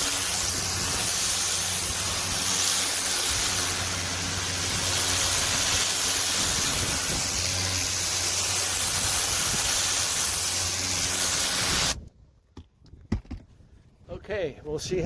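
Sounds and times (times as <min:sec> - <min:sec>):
pressure washer water jet hissing: 0:00.0 - 0:12.0.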